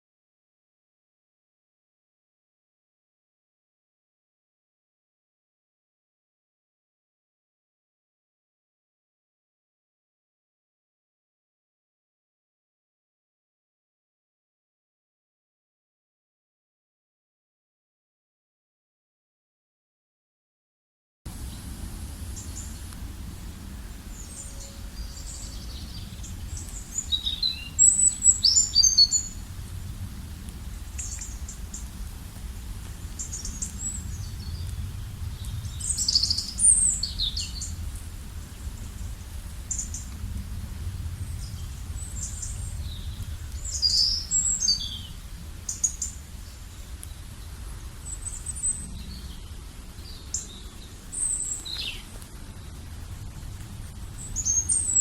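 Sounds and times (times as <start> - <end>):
low rumble: 21.3 - 55.0
songbirds chirping: 21.3 - 55.0.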